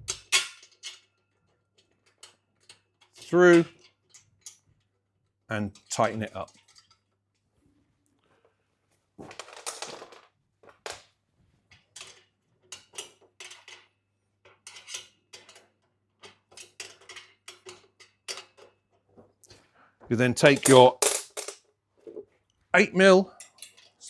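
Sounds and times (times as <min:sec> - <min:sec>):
metal bolt hardware clinking: 0:20.3 - 0:21.6.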